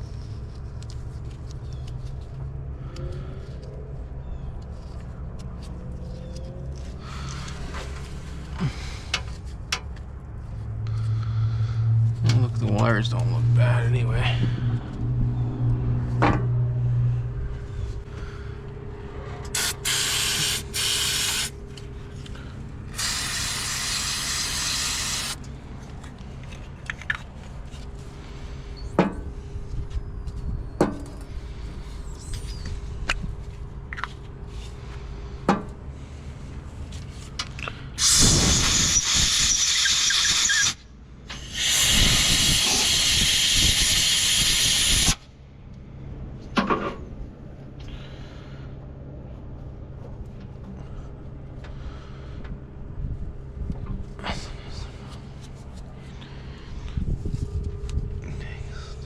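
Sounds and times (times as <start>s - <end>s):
pressurised spray hissing: 19.6s - 21.5s, 22.9s - 25.4s, 38.0s - 40.7s, 41.4s - 45.2s.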